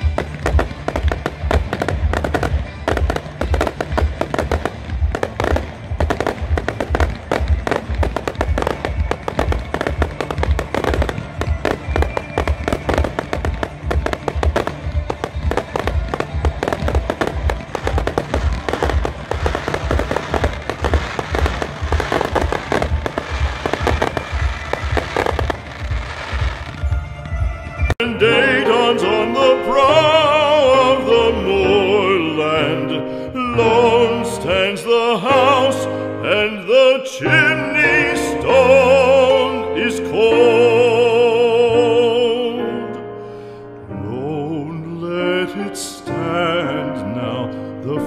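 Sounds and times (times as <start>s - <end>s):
fireworks bangs and crackles: 0.0s - 28.0s
background music: 0.0s - 48.0s.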